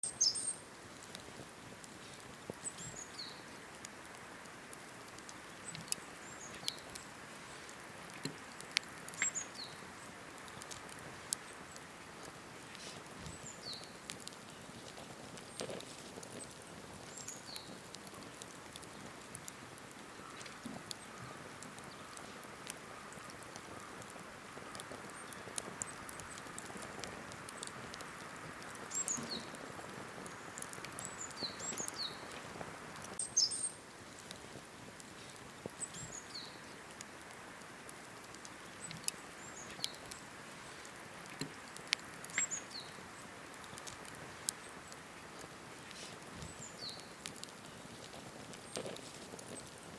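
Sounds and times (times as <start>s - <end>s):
bird chirp: 0.0s - 0.6s, 2.6s - 3.5s, 5.4s - 7.6s, 9.2s - 10.2s, 28.8s - 29.6s, 30.3s - 32.4s, 33.2s - 33.8s, 35.8s - 36.8s, 42.3s - 43.3s
campfire crackling and popping: 0.0s - 49.9s.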